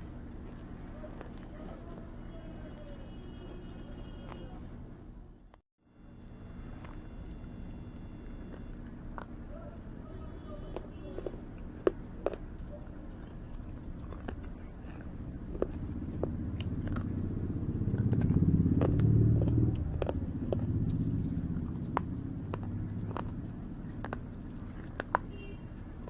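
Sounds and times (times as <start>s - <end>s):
crunchy chewing: 0.0s - 4.7s, 6.7s - 26.0s
vehicle engine rumble passing: 6.6s - 26.0s.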